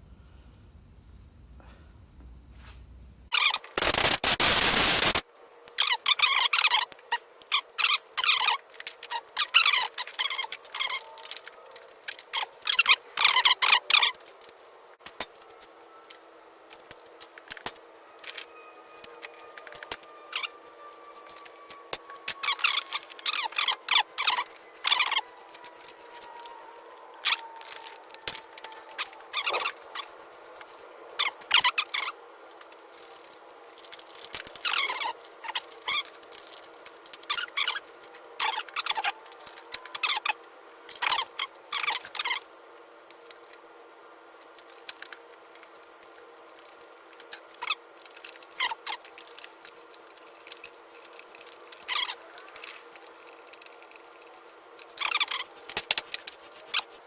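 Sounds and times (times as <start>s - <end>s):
scratchy rubbing of starter rope: 53.4s - 57.0s.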